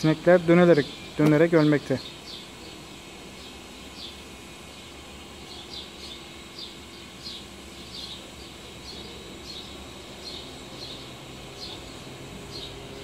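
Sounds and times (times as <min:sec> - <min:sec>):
outdoor background hiss: 0:00.0 - 0:13.0
small bird chirping: 0:00.8 - 0:13.0.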